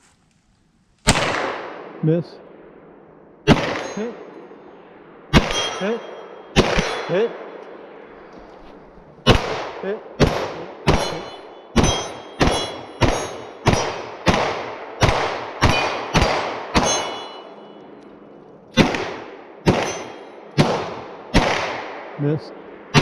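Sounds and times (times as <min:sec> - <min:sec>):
gunshots: 0:01.0 - 0:02.3, 0:03.4 - 0:04.3, 0:05.2 - 0:08.3, 0:09.2 - 0:17.7, 0:18.8 - 0:23.0
steel targets ringing: 0:03.6 - 0:04.4, 0:05.4 - 0:07.4, 0:10.8 - 0:14.1, 0:15.6 - 0:18.1, 0:19.6 - 0:20.6.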